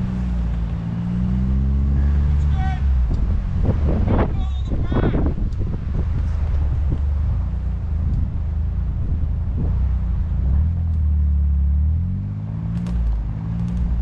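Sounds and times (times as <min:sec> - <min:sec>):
small vehicle engine running: 0:12.5 - 0:14.0.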